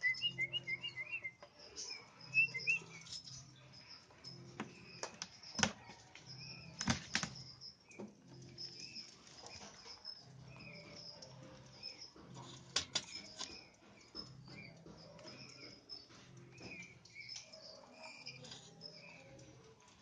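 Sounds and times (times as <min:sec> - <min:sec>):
bird chirping: 0:00.0 - 0:20.0.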